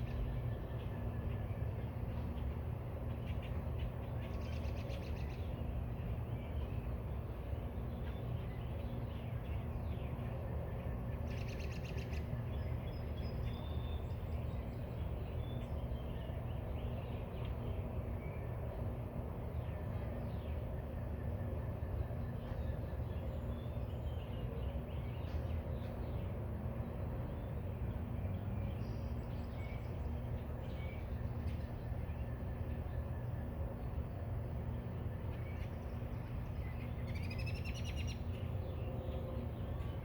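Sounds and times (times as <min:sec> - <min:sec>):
steady low rumble: 0:00.0 - 0:40.0
small birds chirping: 0:22.2 - 0:40.0.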